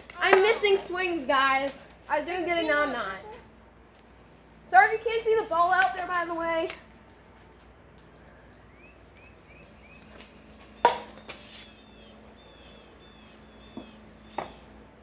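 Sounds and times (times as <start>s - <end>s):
plastic bat cracking ball: 0.2s - 0.8s, 10.8s - 11.4s.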